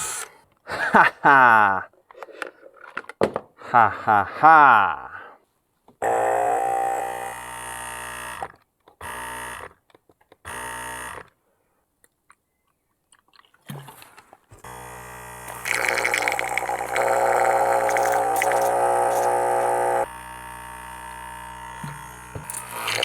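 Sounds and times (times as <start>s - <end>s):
electric pump buzzing: 0.0s - 0.2s, 6.0s - 8.4s, 10.5s - 11.2s, 14.6s - 23.0s.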